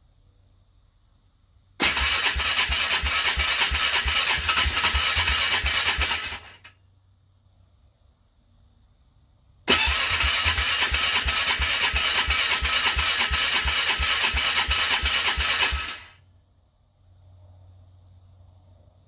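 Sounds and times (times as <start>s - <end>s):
starter motor cranking engine: 1.8s - 6.7s, 9.7s - 16.2s.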